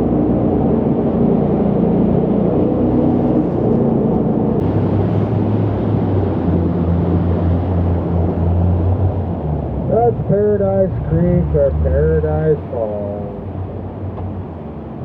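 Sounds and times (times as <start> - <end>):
boat engine running: 4.6 - 15.0.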